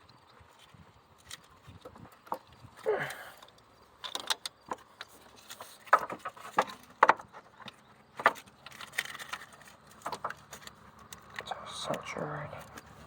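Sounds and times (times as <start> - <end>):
clicks and rattles of connectors: 0.6 - 13.0.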